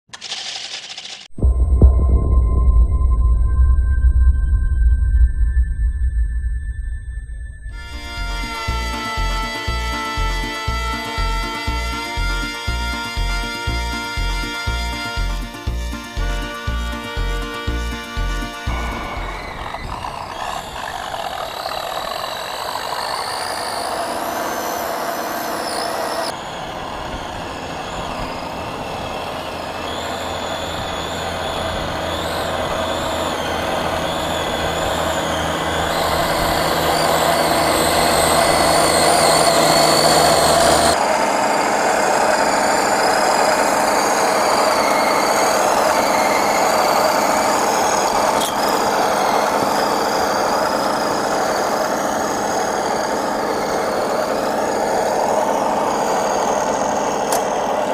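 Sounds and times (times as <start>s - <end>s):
toy truck motor whining: 0.1s - 1.3s, 7.9s - 57.9s.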